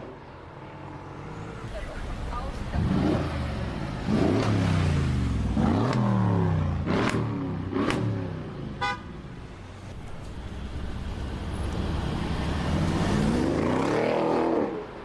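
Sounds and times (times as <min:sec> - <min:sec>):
car engine revving: 0:01.7 - 0:08.5.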